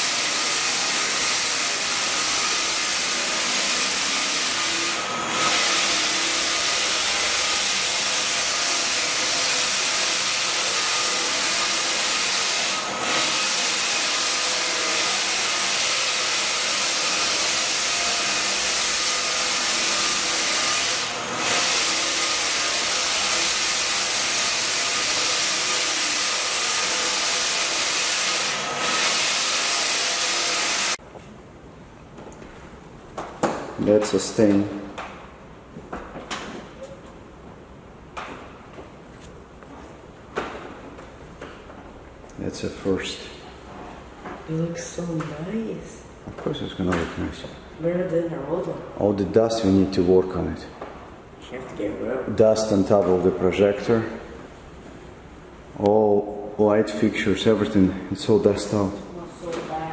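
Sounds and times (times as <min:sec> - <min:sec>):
floor sander running: 0:00.0 - 0:31.0.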